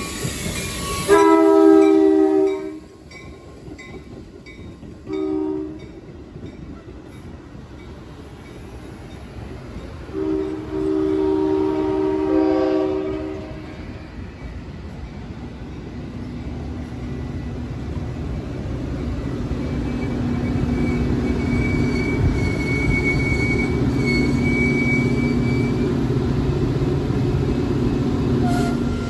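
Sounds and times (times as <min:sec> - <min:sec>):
train cars rumbling past: 0:00.0 - 0:29.0
high-pitched squeal: 0:19.6 - 0:26.0.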